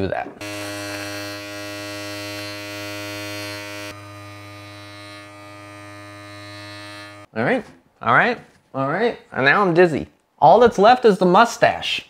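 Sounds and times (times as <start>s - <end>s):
electric beard trimmer buzzing: 0.4s - 7.3s.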